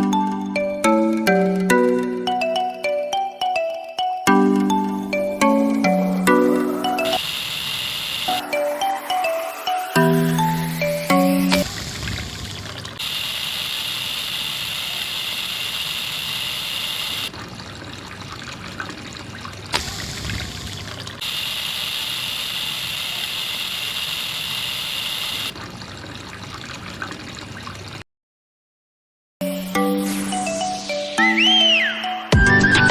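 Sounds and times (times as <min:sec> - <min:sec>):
water trickling and pouring: 0:05.9 - 0:23.0, 0:23.6 - 0:28.0.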